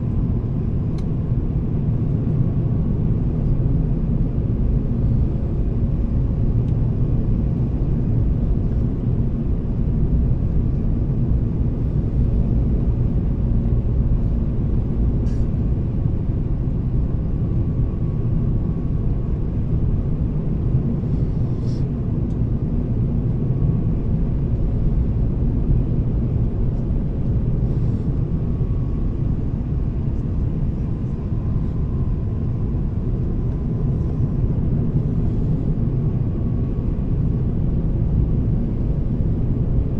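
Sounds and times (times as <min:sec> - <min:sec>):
aircraft cabin engine rumble: 0:00.0 - 0:39.9.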